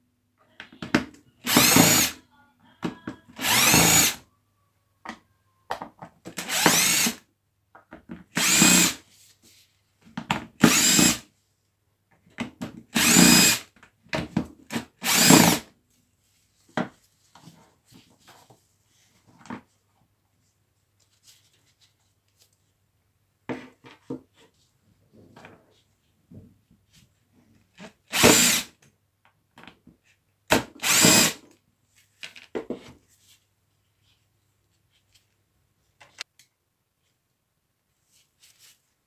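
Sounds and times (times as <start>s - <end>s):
power tool motor running: 1.5s - 2.2s, 3.4s - 4.2s, 6.4s - 7.2s, 8.4s - 9.0s, 10.7s - 11.2s, 13.0s - 13.6s, 15.0s - 15.6s, 28.1s - 28.7s, 30.8s - 31.4s.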